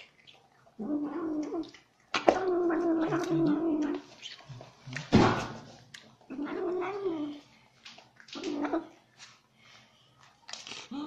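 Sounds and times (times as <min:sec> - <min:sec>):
cat growling yowl: 0:02.3 - 0:04.0, 0:06.3 - 0:07.3.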